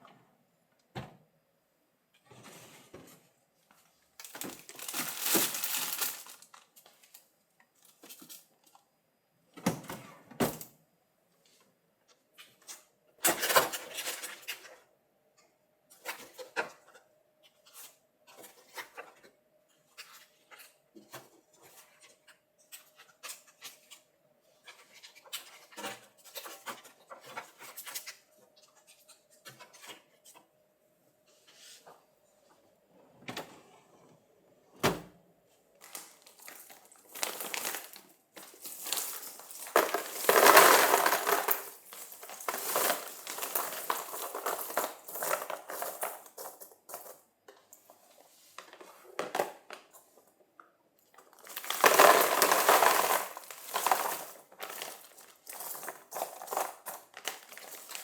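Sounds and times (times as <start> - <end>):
plastic rustling or tearing: 4.2 - 6.7, 35.8 - 46.6, 51.3 - 58.0
containers and dishes clinking: 35.9 - 47.2, 51.4 - 58.0.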